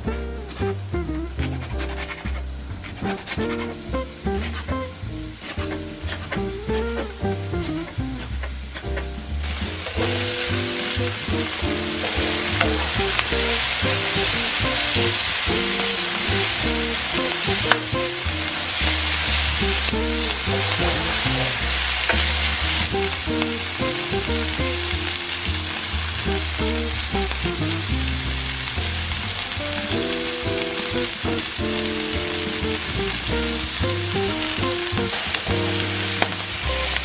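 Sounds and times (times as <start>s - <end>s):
background music: 0.0s - 37.0s
greens sizzling in frying pan: 0.4s - 37.0s
wooden spoon stirring: 0.5s - 24.5s.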